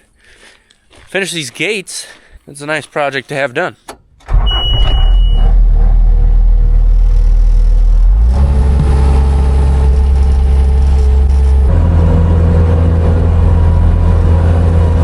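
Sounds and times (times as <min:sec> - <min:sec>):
vehicle engine running: 0:05.2 - 0:15.0.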